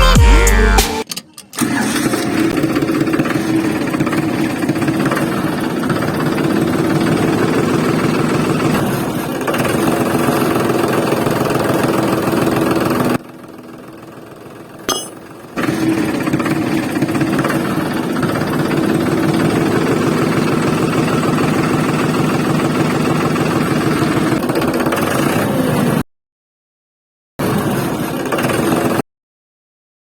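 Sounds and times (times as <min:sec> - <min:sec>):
small motor running: 0:01.9 - 0:14.0.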